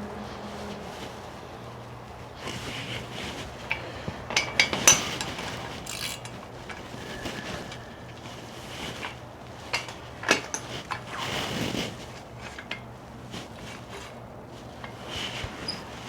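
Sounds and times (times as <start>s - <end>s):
rustle: 0.1s - 16.0s
tools clinking: 4.3s - 6.9s.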